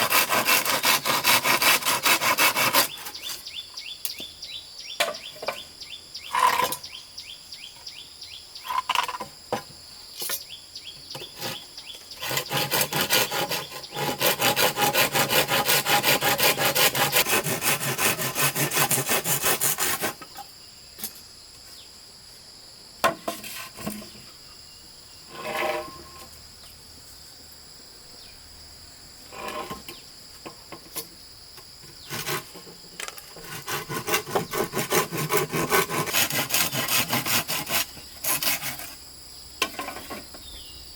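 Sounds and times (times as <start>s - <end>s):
hand saw cutting wood: 0.0s - 3.4s, 11.2s - 20.3s, 23.2s - 24.2s, 25.3s - 26.2s, 32.0s - 39.0s
insects buzzing: 0.0s - 40.9s.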